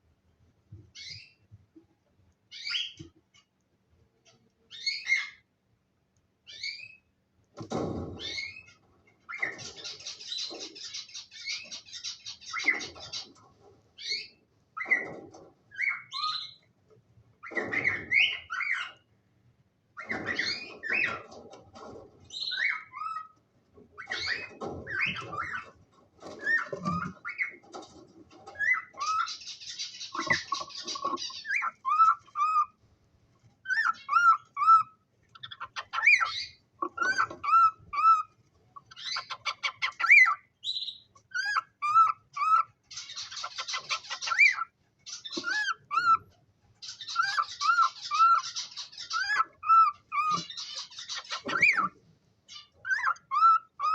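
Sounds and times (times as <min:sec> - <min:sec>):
cockatiels chirping: 0:00.9 - 0:01.4, 0:02.5 - 0:03.5, 0:04.7 - 0:05.4, 0:08.2 - 0:13.4, 0:14.0 - 0:16.6, 0:17.4 - 0:19.1, 0:20.0 - 0:21.4, 0:22.3 - 0:23.4, 0:24.0 - 0:27.9, 0:28.5 - 0:32.8, 0:33.6 - 0:53.9.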